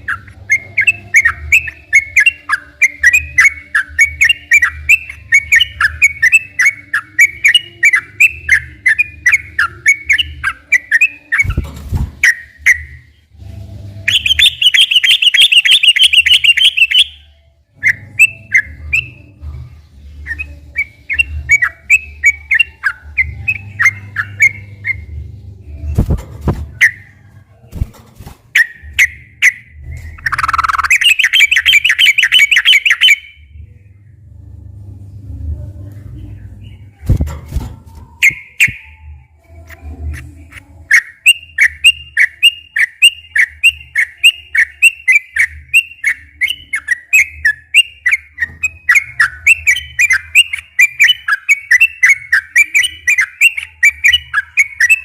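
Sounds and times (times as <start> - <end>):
bulbul singing chirping notes: 0.0 - 11.6, 14.1 - 19.3, 28.6 - 33.6, 38.0 - 55.0.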